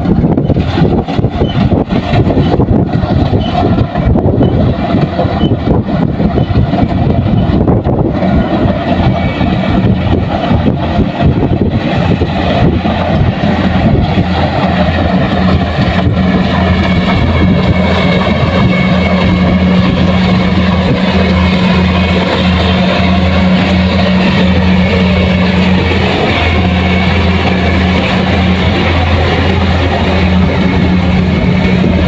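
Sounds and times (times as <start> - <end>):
combine harvester diesel engine: 0.0 - 32.0.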